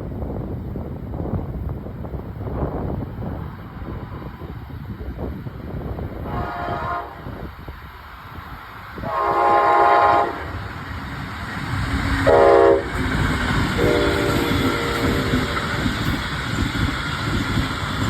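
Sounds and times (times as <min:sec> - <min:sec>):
passing train rumble: 0:00.0 - 0:18.0
train air horn blasts: 0:06.2 - 0:07.4, 0:09.0 - 0:10.6, 0:12.2 - 0:13.0, 0:13.7 - 0:15.6.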